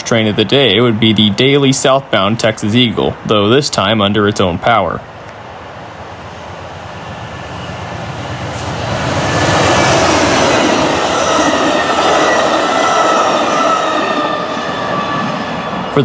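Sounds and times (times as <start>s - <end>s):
passenger train rumble: 0.0s - 16.0s
wheels squealing: 6.1s - 16.0s.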